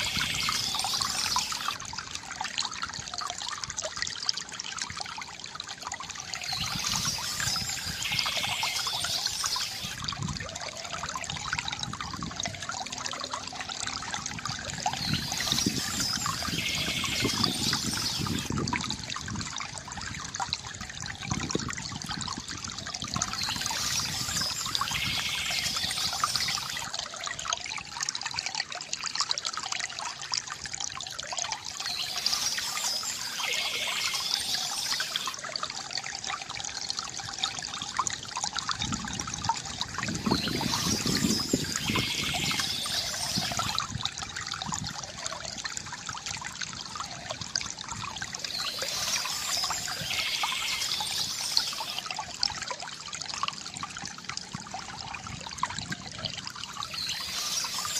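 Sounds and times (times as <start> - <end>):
water trickling from fountain spout: 0.0 - 57.9
songbirds chirping: 40.2 - 43.7.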